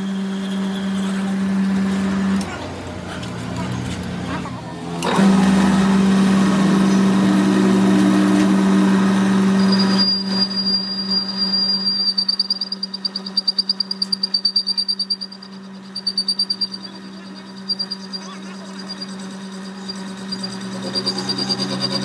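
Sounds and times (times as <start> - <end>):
pulsing high whine: 0.0 - 22.0
workshop machine humming: 0.0 - 22.0.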